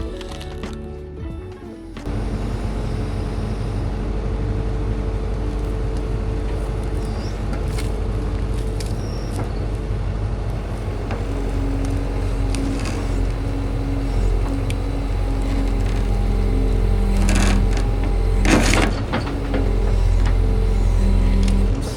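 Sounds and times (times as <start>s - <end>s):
vehicle engine running: 0.0s - 21.9s
short clicks and high squeaks: 5.5s - 9.8s.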